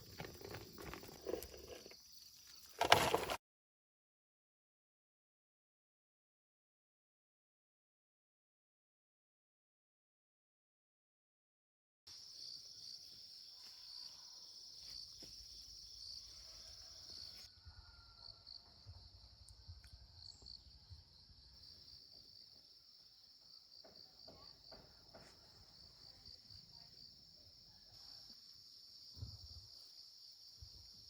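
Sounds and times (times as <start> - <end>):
insects trilling: 0.0 - 3.4, 12.1 - 31.0.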